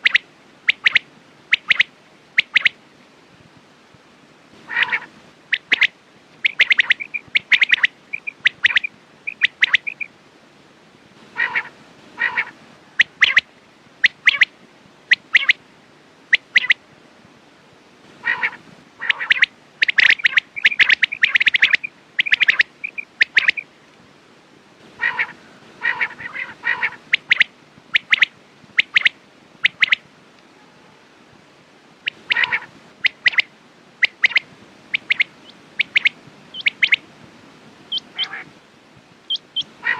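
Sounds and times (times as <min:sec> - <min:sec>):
quail calling: 0:00.0 - 0:02.8, 0:04.6 - 0:10.1, 0:11.3 - 0:14.5, 0:15.1 - 0:15.6, 0:16.3 - 0:16.8, 0:18.2 - 0:23.7, 0:25.0 - 0:30.0, 0:32.0 - 0:37.0, 0:37.9 - 0:38.5, 0:39.3 - 0:39.9.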